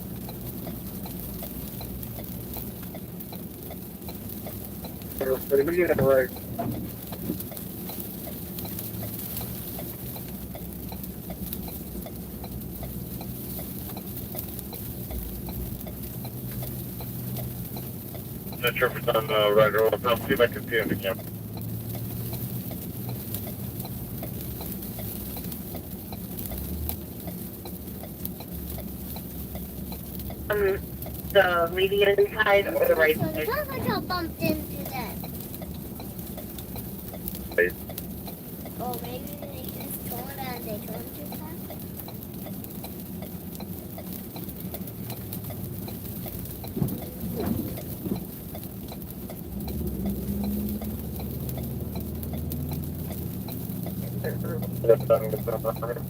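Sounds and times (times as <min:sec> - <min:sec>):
engine idle hum: 0:00.0 - 0:56.0
turn signal ticking: 0:00.0 - 0:56.0
low cabin hum: 0:04.8 - 0:07.6, 0:14.7 - 0:21.5, 0:29.5 - 0:41.8, 0:52.0 - 0:56.0.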